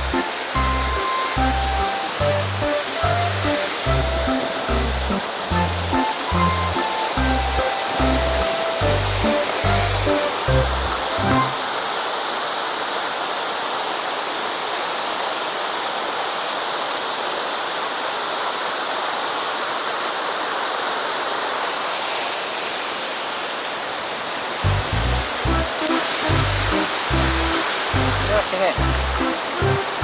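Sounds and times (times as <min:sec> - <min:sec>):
rushing water: 0:00.0 - 0:30.0.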